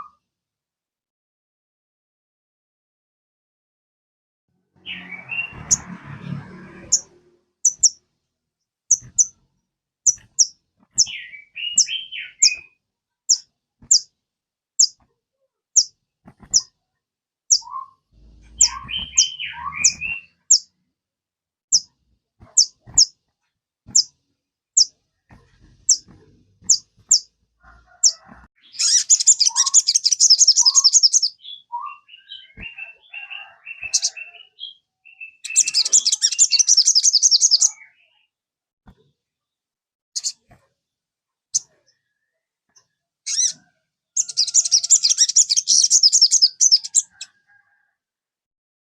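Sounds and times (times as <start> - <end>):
bird song chirps and trills: 4.8 - 6.1, 6.8 - 8.0, 8.9 - 9.4, 10.1 - 14.1, 14.8 - 15.0, 15.7 - 16.7, 17.5 - 20.7, 22.5 - 23.2, 23.9 - 24.2, 24.8 - 27.3, 28.0 - 38.3, 40.2 - 40.5, 41.5 - 47.8.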